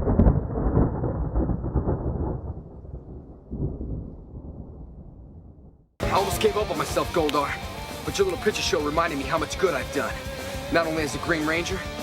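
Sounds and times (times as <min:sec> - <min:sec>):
thunder rumbling: 0:00.0 - 0:07.3.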